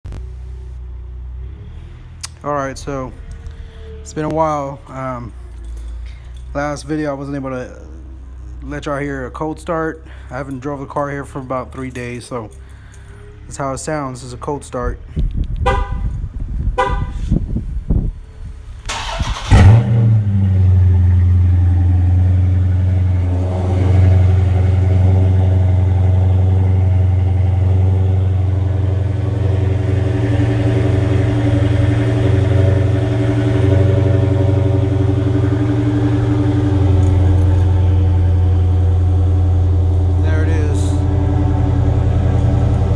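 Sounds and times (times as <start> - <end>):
car engine cranking and starting: 0.1 - 15.8, 18.5 - 42.9
deep engine idle: 19.0 - 42.9.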